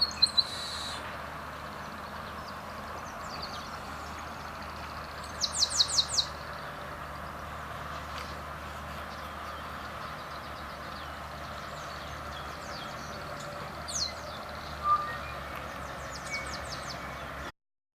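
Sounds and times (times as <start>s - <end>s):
birds chirping and whistling: 0.0s - 1.1s, 1.8s - 6.4s, 9.0s - 17.5s.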